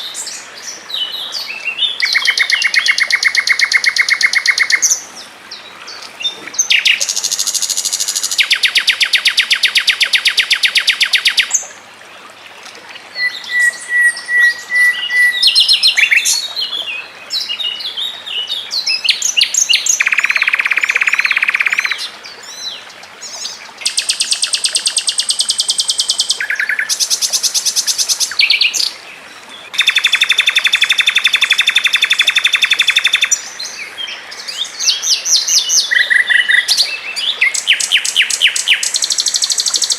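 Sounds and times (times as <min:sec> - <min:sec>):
thin bird whistle: 0:13.2 - 0:16.3.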